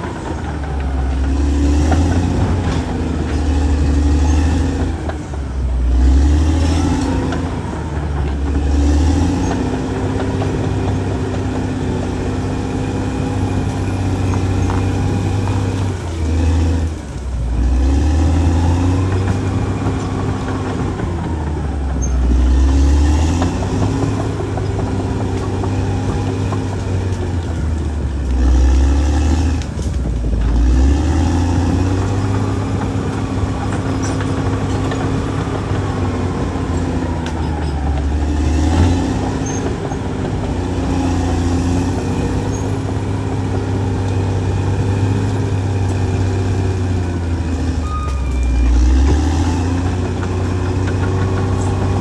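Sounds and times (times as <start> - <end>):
bulldozer diesel engine: 0.0 - 52.0.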